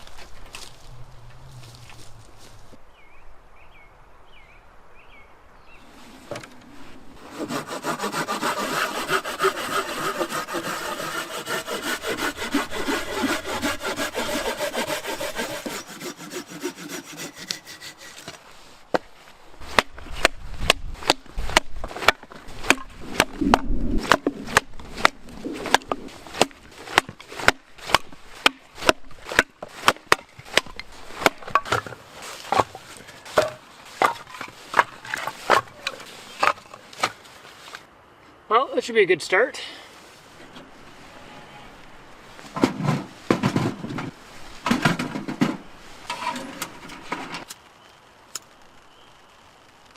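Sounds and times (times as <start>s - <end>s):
hand saw cutting wood: 7.2s - 18.4s
firewood snapping and knocking: 19.7s - 37.2s.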